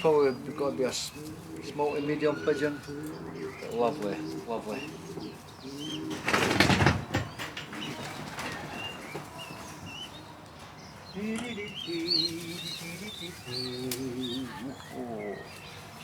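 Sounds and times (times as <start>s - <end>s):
pigeons wavering calls: 0.0s - 16.0s
young pigeons squeaking: 0.0s - 16.0s
wings flapping: 5.6s - 10.0s.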